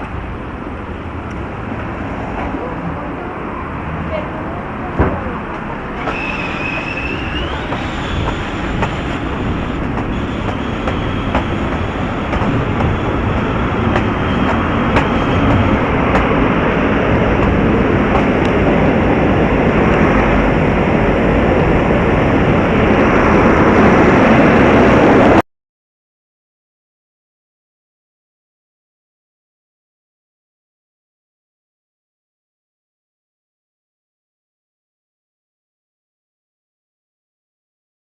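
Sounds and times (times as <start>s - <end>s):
rail car running noise: 0.0s - 25.4s.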